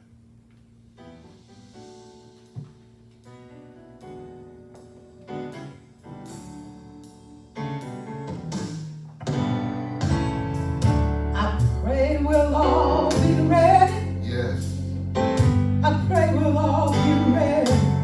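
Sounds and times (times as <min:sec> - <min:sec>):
bass: 0:00.0 - 0:18.0
piano chords: 0:00.9 - 0:18.0.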